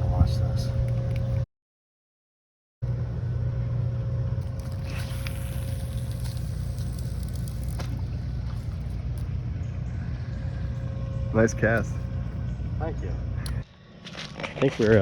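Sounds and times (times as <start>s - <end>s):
motor humming: 2.8s - 13.7s.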